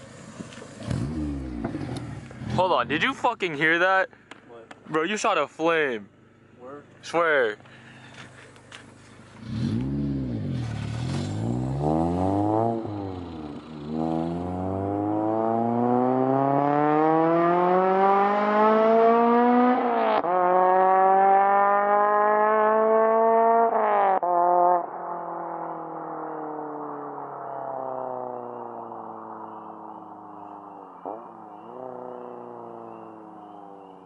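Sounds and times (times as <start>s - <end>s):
car engine revving and shifting: 0.8s - 2.6s, 9.4s - 34.0s.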